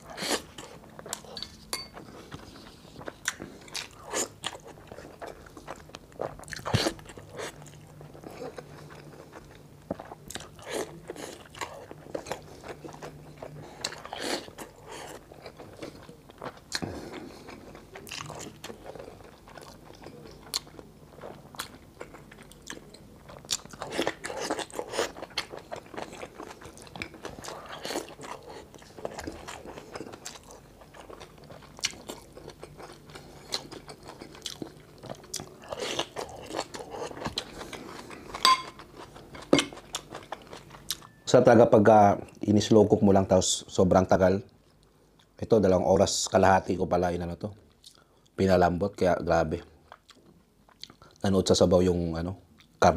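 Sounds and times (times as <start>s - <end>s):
wet chewing and crunching: 0.0s - 41.2s.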